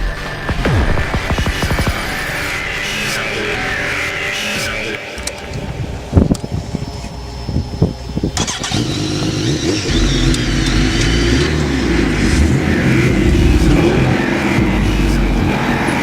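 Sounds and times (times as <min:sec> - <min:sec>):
engine bang: 0:08.4 - 0:16.0
racing engine revving: 0:08.4 - 0:16.0.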